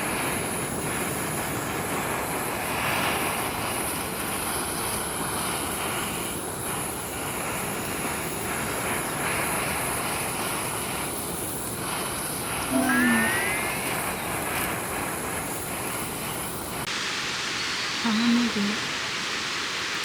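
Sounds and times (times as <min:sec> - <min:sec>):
food sizzling in hot oil: 0:15.1 - 0:20.0.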